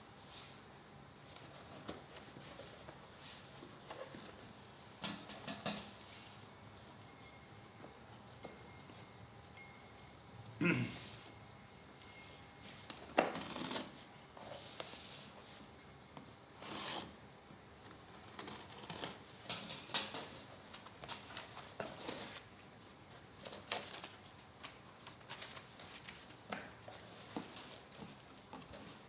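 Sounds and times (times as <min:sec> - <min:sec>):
phone packaging rustling and scraping: 0:18.0 - 0:29.0.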